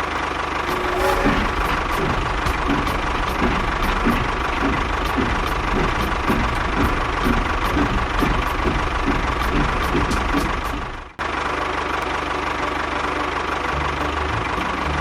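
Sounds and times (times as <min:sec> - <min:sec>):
small engine knocking: 0:00.7 - 0:11.5.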